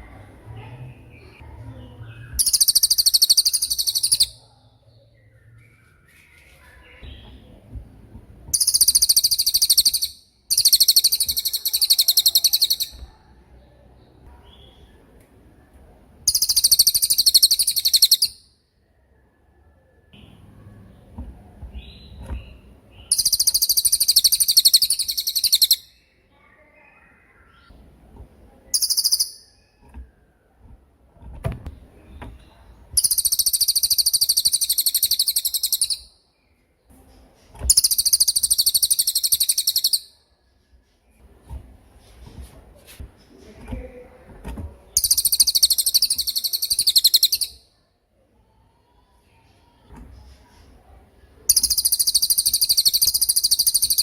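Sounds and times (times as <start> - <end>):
songbird rattling trills: 23.1 - 25.8, 28.8 - 29.6, 45.0 - 47.5.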